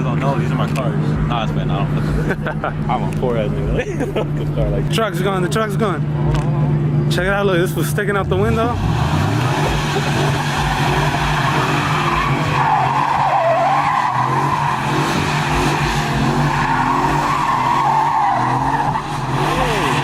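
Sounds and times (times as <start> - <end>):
car engine revving high: 0.0 - 20.0
tires squealing: 0.0 - 20.0.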